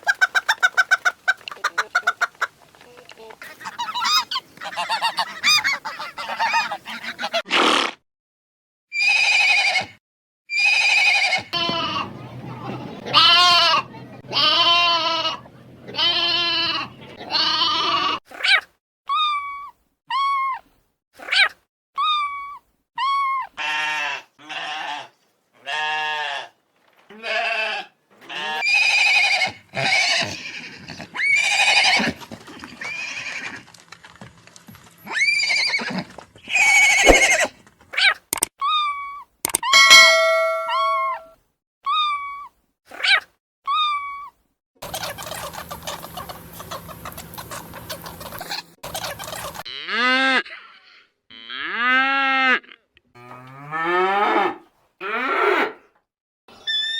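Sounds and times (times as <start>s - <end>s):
goat-like bleats: 13.0s - 15.4s, 16.0s - 18.2s, 23.6s - 30.6s.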